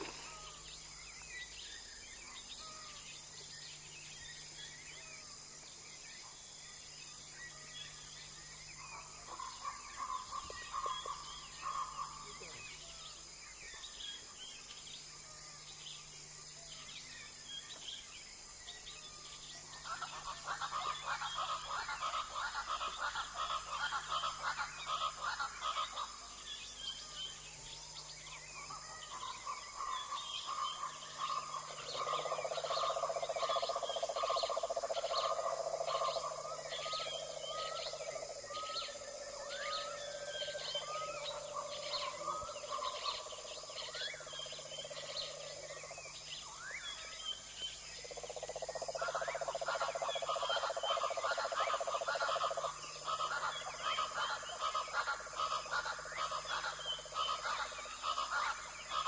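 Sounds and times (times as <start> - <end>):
high insect buzz: 0.0 - 3.5.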